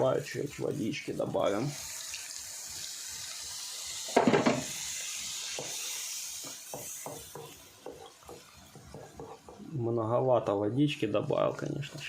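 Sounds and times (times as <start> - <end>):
steady hiss: 0.0 - 12.0
spoon stirring and knocking pan: 4.1 - 4.8, 5.4 - 9.7.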